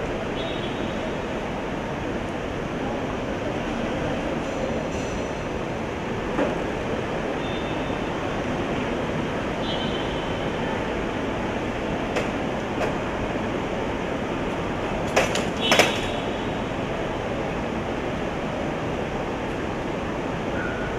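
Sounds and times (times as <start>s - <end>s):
sharp knocks and clatters: 15.0s - 16.2s.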